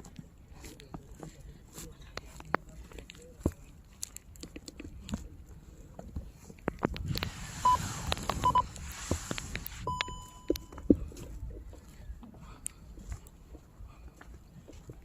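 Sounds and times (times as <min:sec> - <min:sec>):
clicks and crunching: 0:02.2 - 0:05.3
short electronic beeps: 0:07.6 - 0:07.8, 0:08.4 - 0:08.7, 0:09.8 - 0:10.8.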